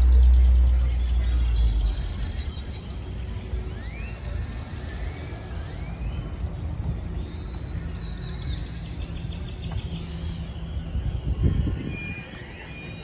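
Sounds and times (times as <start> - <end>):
steady low rumble: 0.0 - 4.9
birds chirping: 0.0 - 13.0.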